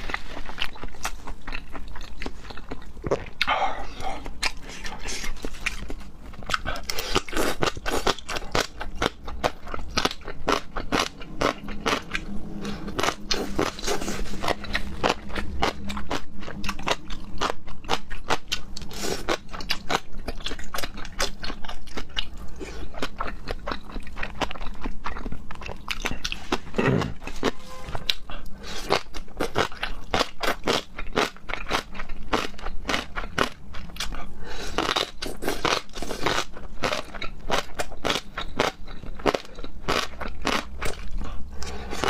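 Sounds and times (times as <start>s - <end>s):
person crunching and chewing: 0.0s - 42.0s.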